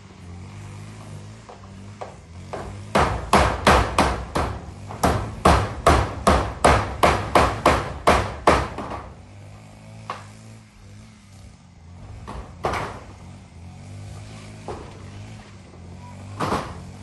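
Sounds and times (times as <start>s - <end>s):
hammer nailing metal roofing: 1.4s - 9.4s, 12.0s - 13.2s, 14.6s - 17.0s.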